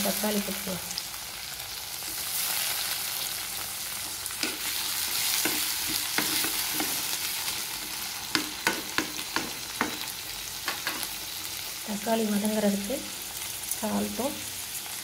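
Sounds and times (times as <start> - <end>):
vegetables sizzling in hot oil: 0.0 - 15.0
spatula scraping a metal pan: 4.4 - 10.0.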